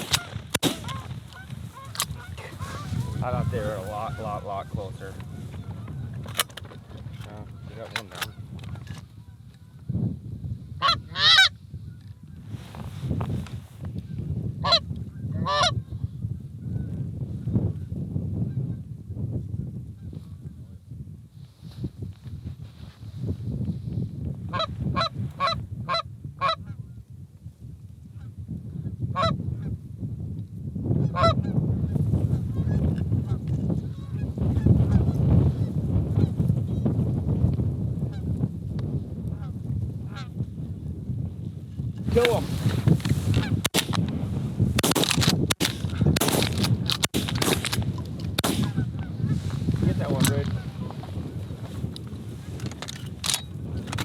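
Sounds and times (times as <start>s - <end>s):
goose honks: 0.2s - 5.6s, 10.8s - 11.5s.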